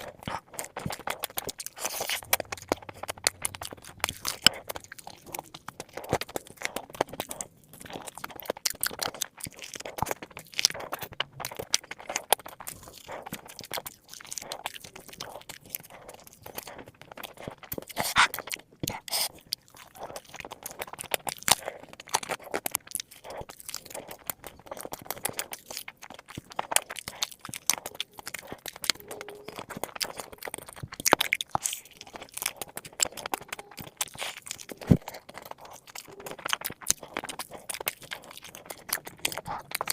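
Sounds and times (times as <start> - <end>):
crunching fried chicken: 0.0 - 39.9
wet chewing: 0.0 - 39.9.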